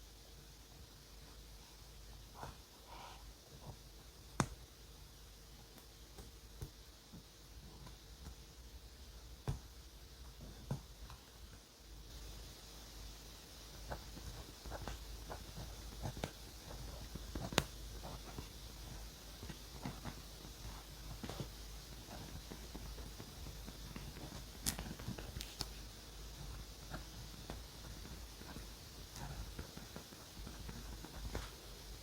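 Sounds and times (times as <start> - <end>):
small taps and clicks: 3.6 - 4.6, 5.7 - 8.4, 13.9 - 25.8
pen scratching on paper: 13.9 - 23.2.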